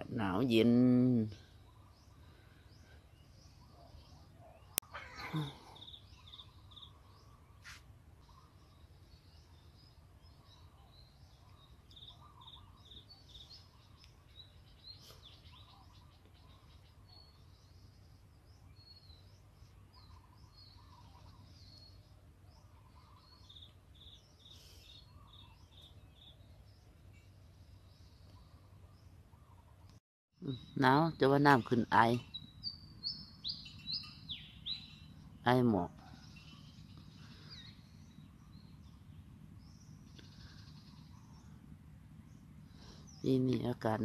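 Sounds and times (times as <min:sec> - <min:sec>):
lower bird calls: 0:01.3 - 0:30.9, 0:32.2 - 0:43.8
high bird chirps: 0:30.4 - 0:39.0
low steady rumble: 0:36.1 - 0:43.2.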